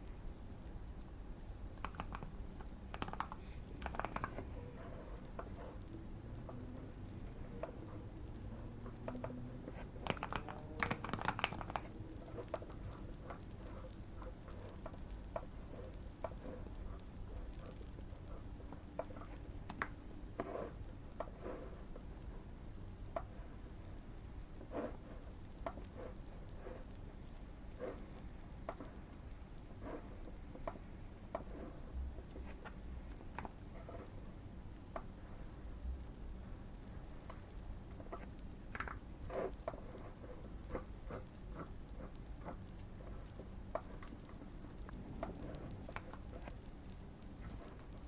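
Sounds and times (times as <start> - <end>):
fireplace crackling: 0.0 - 48.0
low steady hum: 0.0 - 48.0
mechanical keyboard typing: 1.8 - 21.4.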